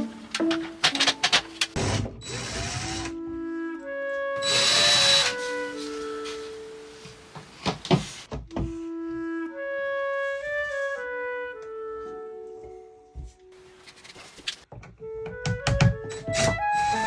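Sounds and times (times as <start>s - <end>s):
background music with held notes: 0.0s - 13.9s, 14.7s - 17.0s
power drill whirring: 1.8s - 3.2s, 4.4s - 6.0s.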